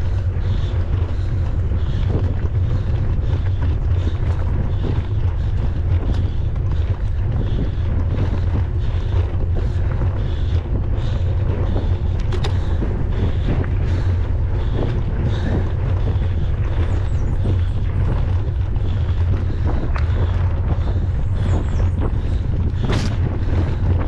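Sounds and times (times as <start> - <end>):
bike clicks and rattles: 0.0 - 24.0
wind buffeting microphone: 0.0 - 24.0.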